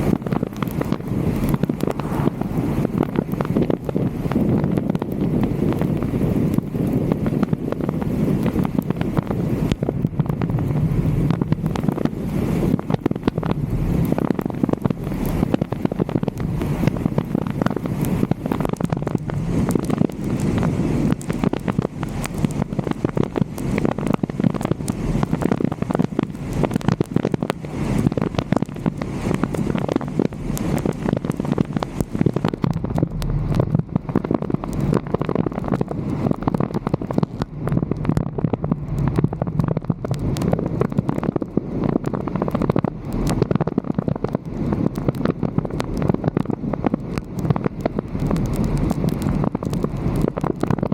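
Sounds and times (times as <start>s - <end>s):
crackling pops: 0.0s - 50.9s
wind noise on microphone: 0.0s - 50.9s.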